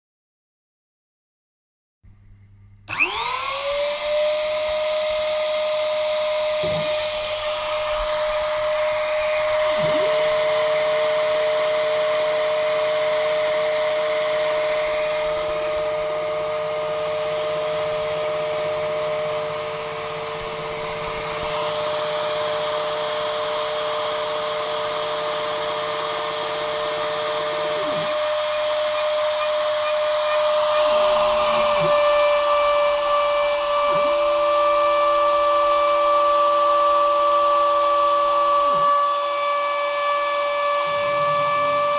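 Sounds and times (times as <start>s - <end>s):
lower motor whine: 2.2s - 41.9s
motor high whine: 2.8s - 41.9s.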